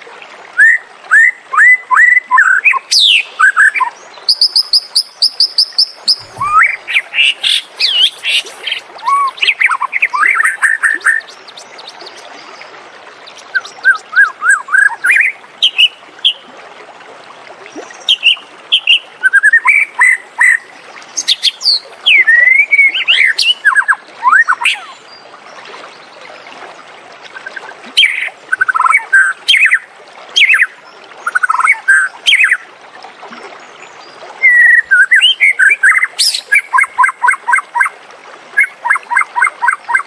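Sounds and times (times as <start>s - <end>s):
bird singing whistled notes: 0.6s - 11.9s, 13.3s - 15.9s, 34.4s - 37.3s.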